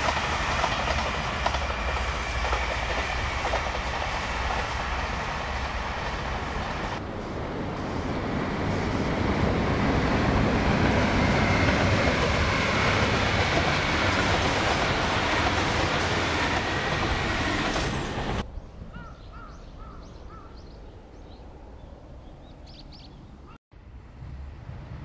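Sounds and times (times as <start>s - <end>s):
diesel train crossing a bridge: 0.0s - 25.0s
birds chirping: 18.4s - 23.6s.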